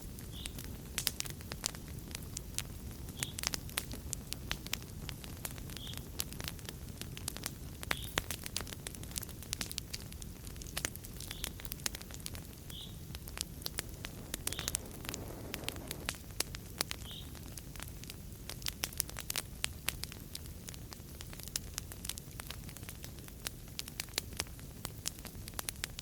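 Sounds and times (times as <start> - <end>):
wood fire crackling: 0.0 - 26.0
sharp pops and snaps: 0.2 - 26.0.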